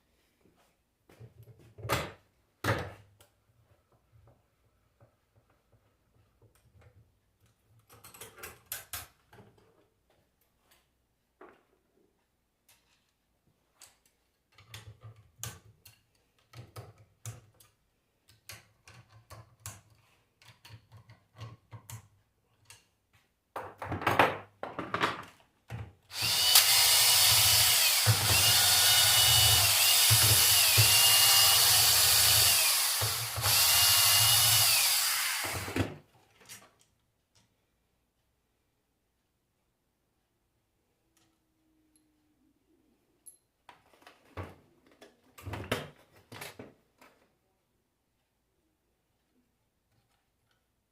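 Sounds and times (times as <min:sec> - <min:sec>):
electric power tool whining: 0:26.1 - 0:35.9.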